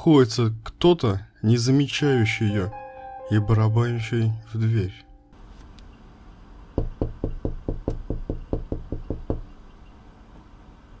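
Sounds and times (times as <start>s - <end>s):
fist knocking rapidly on door: 6.8s - 9.5s.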